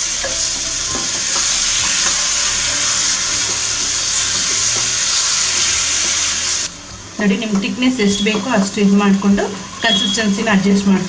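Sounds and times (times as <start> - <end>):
food sizzling in a pan: 0.0 - 11.0
spatula scraping a pan: 0.1 - 6.6.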